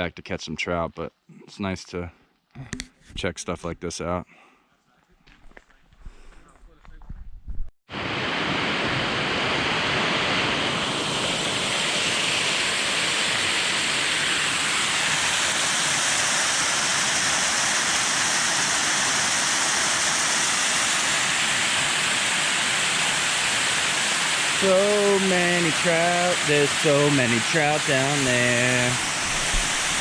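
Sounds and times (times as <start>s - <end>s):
waterfall roaring: 8.0s - 30.0s.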